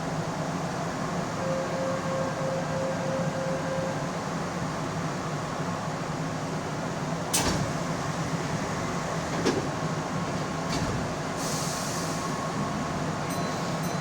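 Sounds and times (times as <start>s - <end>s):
electric train hum: 0.0s - 14.0s
hiss of air: 11.4s - 12.6s.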